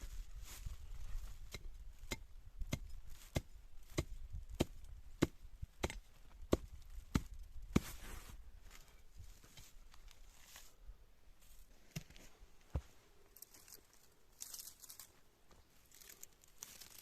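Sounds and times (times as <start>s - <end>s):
wood being chopped: 1.5s - 7.9s.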